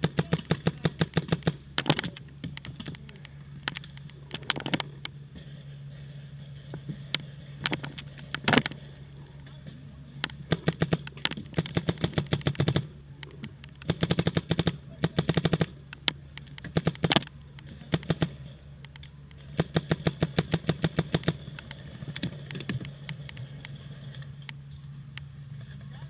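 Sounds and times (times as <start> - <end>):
paintball marker rapid firing: 0.0 - 3.0, 10.3 - 12.9, 13.7 - 18.4, 19.3 - 23.7.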